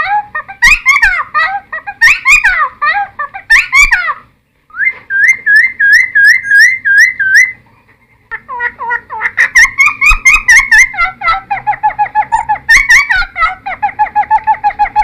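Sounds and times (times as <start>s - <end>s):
bird whistling: 4.7s - 7.6s.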